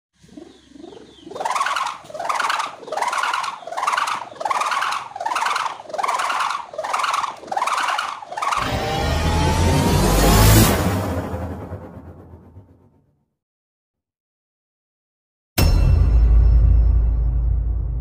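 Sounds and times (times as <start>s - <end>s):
kite ribbon humming in wind: 0.3s - 8.6s.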